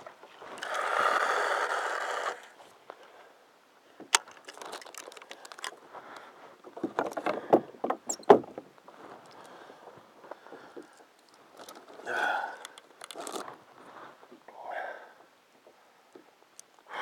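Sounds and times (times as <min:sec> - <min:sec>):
knocks and clatter of gear: 0:04.1 - 0:05.8, 0:06.7 - 0:09.5, 0:10.5 - 0:13.6.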